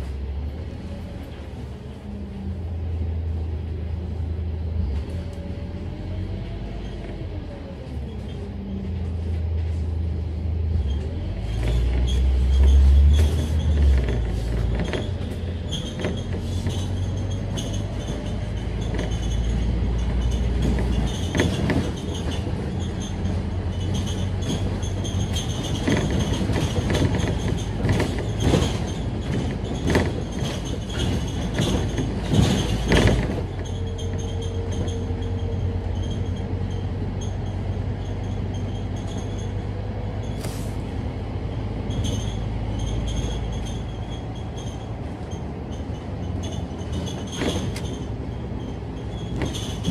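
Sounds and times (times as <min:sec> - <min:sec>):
bus diesel engine droning: 0:00.0 - 0:49.9
rattles and knocks: 0:10.8 - 0:40.9, 0:41.5 - 0:49.9.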